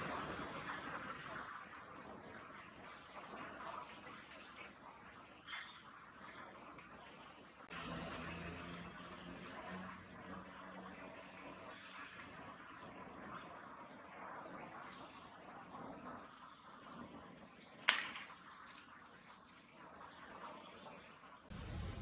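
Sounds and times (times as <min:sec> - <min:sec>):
small bird chipping: 0:17.6 - 0:21.0
sharp click: 0:17.8 - 0:18.4.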